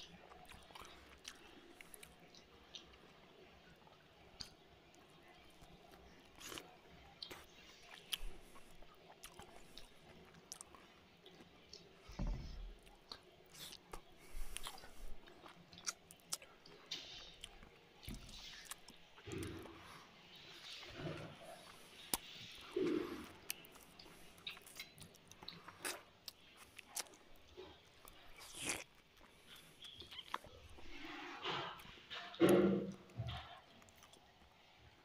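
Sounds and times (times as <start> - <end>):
man chewing food: 0.0 - 35.0
wet mouth clicks: 28.0 - 30.5.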